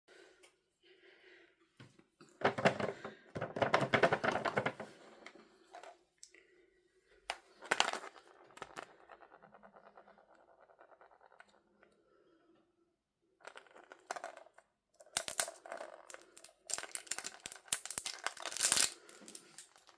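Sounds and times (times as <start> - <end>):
packaging crinkling: 16.1 - 19.9.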